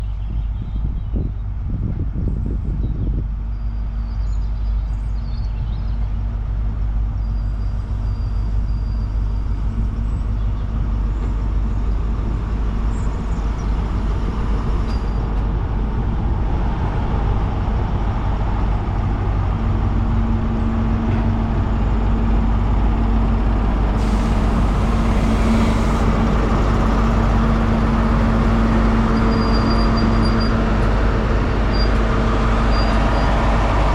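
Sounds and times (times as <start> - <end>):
diesel train engines rumbling: 0.0 - 33.9
brief hiss: 24.0 - 27.0.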